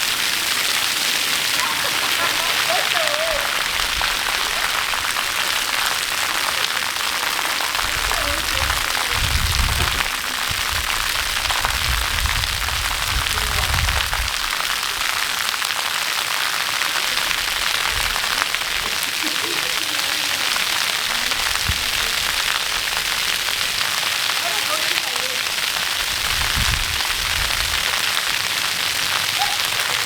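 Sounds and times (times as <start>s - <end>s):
waterfall rushing: 0.0s - 30.0s
low rumbles: 1.4s - 15.7s.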